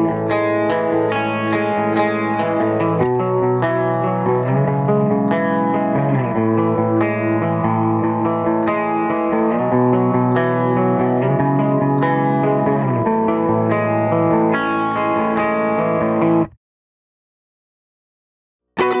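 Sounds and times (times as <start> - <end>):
electric guitar chords: 0.0 - 16.6, 18.8 - 19.0.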